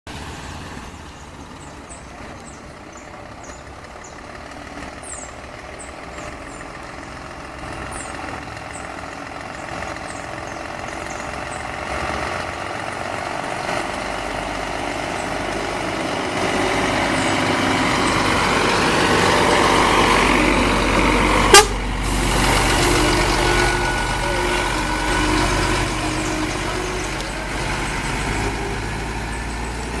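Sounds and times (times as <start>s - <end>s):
truck diesel engine: 0.1s - 30.0s
truck horn: 18.5s - 27.8s.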